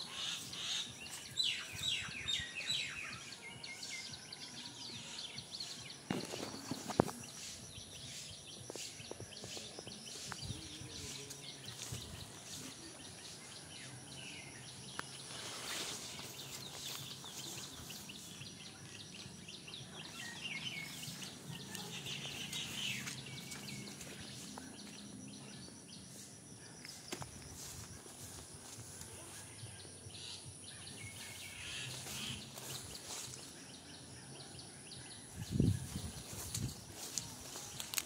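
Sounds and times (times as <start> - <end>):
faint birds chirping: 0.0 - 38.0
high-pitched background hiss: 5.0 - 19.5.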